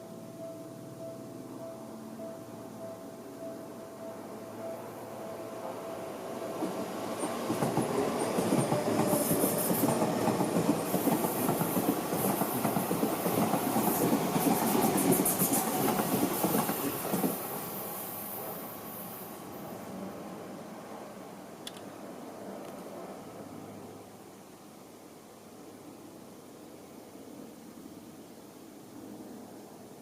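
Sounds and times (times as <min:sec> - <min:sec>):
train wheels clacking: 0:06.5 - 0:17.6.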